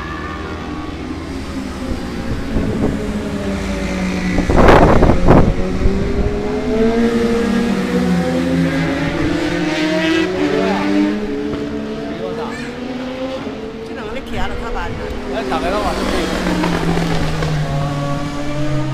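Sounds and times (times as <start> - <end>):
aircraft engines droning: 0.0 - 18.9.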